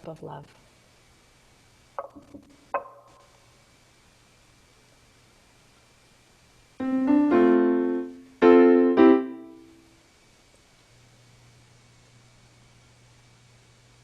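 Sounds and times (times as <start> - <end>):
piano chords ringing: 6.8 - 9.8.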